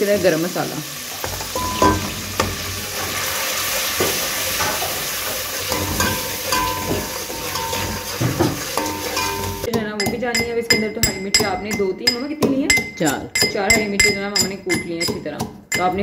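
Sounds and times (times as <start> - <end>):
spices sizzling in a pot: 0.0 - 9.7
spoon scraping and knocking pot: 1.2 - 16.0.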